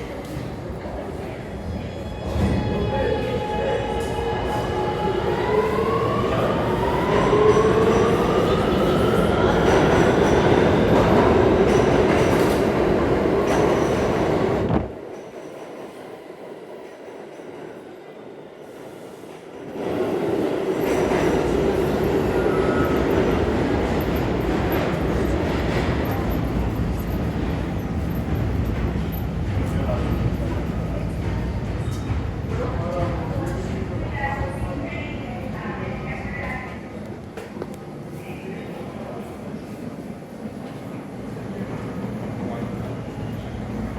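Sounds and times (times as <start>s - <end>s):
subway train motors whining: 0.0s - 43.9s
train wheel and rail noise: 0.0s - 43.9s.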